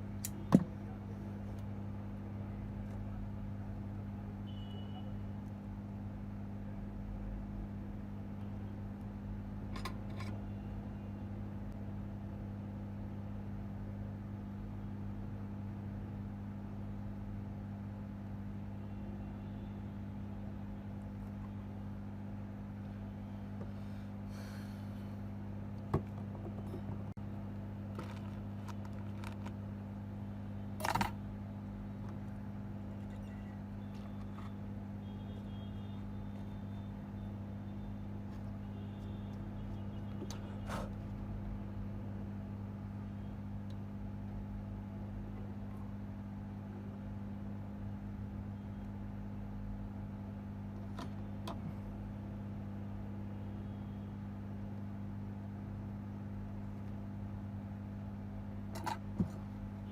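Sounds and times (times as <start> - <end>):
bench equipment humming: 16.1 - 47.6.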